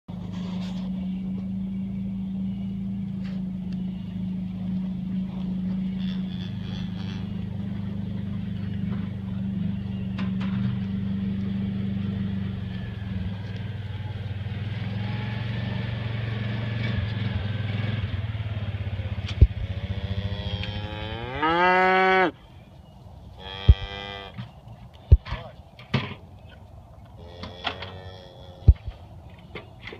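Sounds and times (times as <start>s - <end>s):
cattle mooing and lowing: 0.6s - 16.1s, 19.4s - 22.4s, 23.3s - 24.5s, 27.1s - 29.1s.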